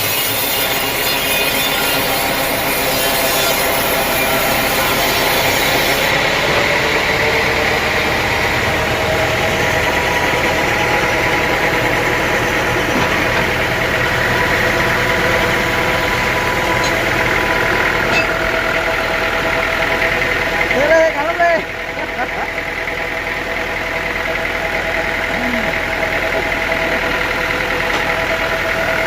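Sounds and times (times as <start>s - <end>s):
saw hissing: 0.0s - 6.2s
sawmill machinery humming: 0.0s - 29.0s.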